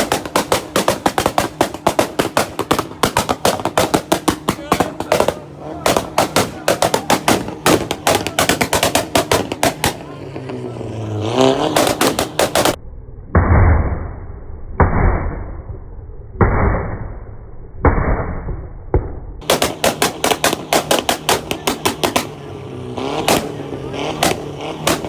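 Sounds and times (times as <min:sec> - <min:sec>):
car engines revving: 0:00.0 - 0:12.8, 0:19.4 - 0:25.0
exhaust pops and crackles: 0:00.0 - 0:12.8, 0:19.0 - 0:25.0.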